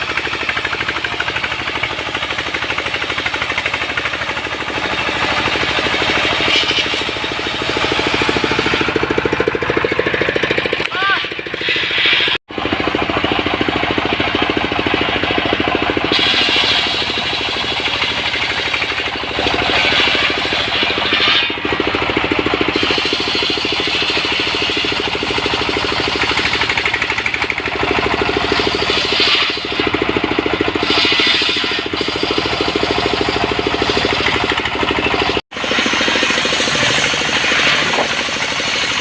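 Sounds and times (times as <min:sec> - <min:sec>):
sawmill engine running: 0:00.0 - 0:39.0.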